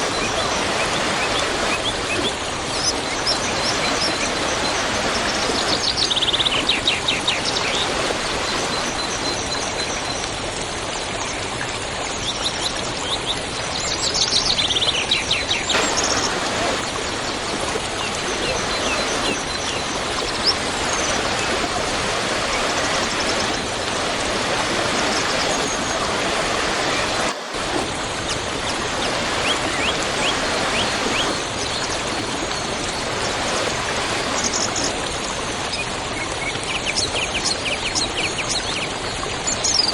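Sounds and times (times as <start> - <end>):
small birds chirping: 0.0 - 10.5, 14.1 - 37.1
waterfall rushing: 0.0 - 10.8, 15.7 - 35.9.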